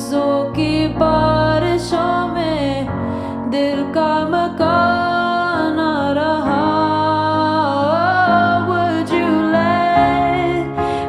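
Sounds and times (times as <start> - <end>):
person singing slow song: 0.0 - 11.0.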